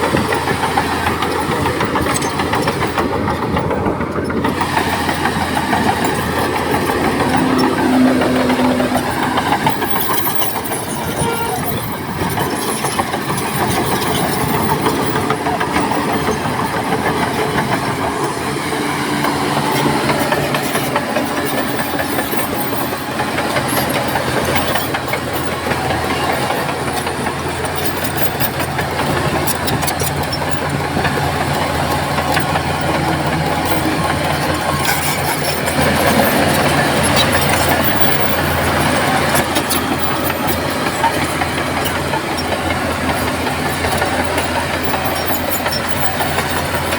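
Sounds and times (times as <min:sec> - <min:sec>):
heavy diesel machinery running: 0:00.0 - 0:46.9.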